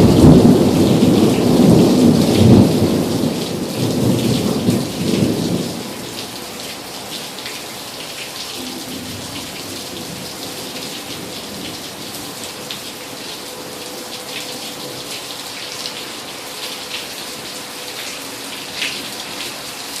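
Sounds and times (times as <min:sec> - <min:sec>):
thunder rumble: 0:00.0 - 0:05.9
rain ticking on hard surface: 0:00.0 - 0:20.0.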